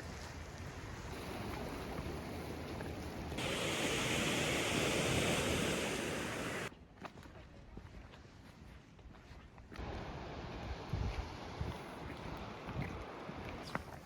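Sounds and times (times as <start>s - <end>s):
sea surf washing in: 1.1s - 6.7s
wind on microphone: 1.1s - 6.7s, 10.8s - 13.8s.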